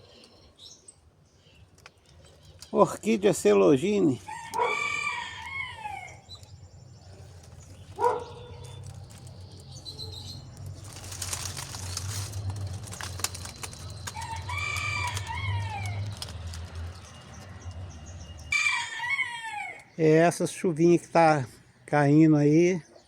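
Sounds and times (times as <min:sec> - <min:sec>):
rooster crowing: 0:04.2 - 0:06.3, 0:14.0 - 0:16.5, 0:18.5 - 0:19.9
rooster flapping wings: 0:10.8 - 0:17.2.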